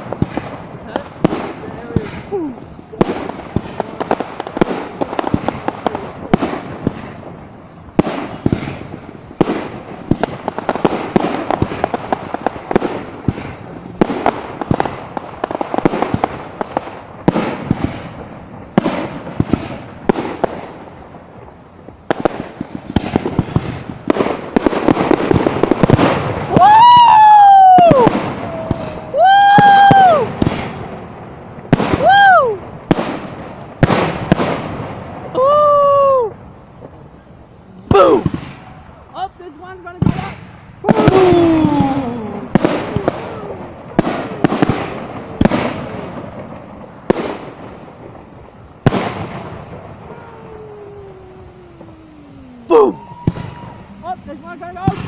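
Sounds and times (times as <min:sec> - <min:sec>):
fireworks banging and crackling: 0:00.0 - 0:55.0
high whooping cries: 0:26.5 - 0:30.4, 0:31.9 - 0:32.7, 0:35.3 - 0:36.4, 0:40.8 - 0:44.4, 0:50.0 - 0:54.3.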